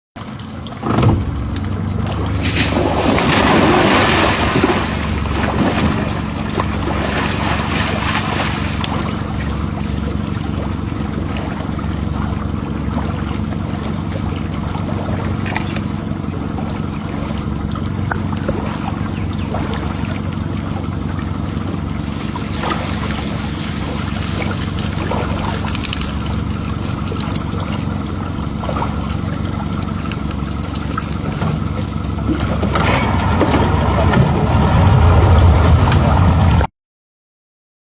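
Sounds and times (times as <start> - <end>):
boat motor idling: 0.2 - 36.7.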